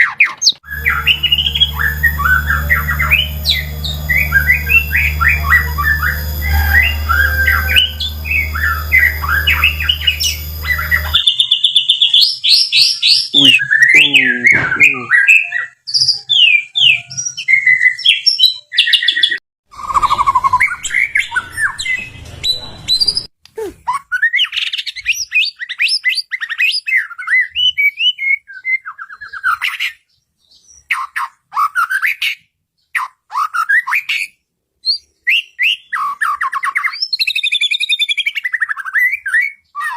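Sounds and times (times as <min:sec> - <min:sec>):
steady low hum: 0:00.7 - 0:11.2
bird singing whistles and trills: 0:34.8 - 0:39.9.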